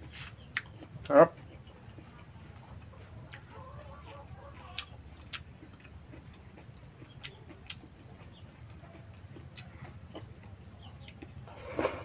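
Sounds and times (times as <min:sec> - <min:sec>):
faint chirping: 0:00.0 - 0:12.0
wet chewing smacks: 0:04.6 - 0:12.0.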